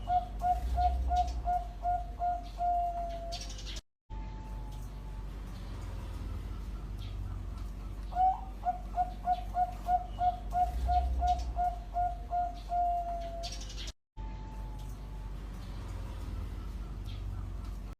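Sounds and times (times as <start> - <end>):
dove cooing: 0.0 - 3.7, 6.5 - 13.9
low steady hum: 4.1 - 17.9.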